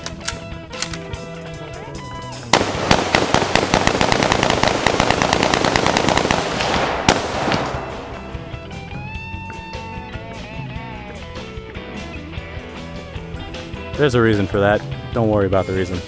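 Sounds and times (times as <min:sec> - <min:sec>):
music: 0:00.0 - 0:02.8, 0:07.3 - 0:16.0
rapid gunfire: 0:02.5 - 0:08.4.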